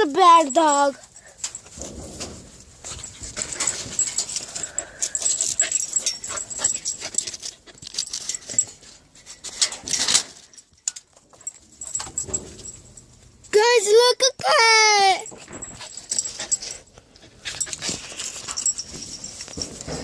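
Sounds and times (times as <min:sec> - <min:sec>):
scraping and rustling: 0:00.1 - 0:13.4, 0:15.3 - 0:20.0.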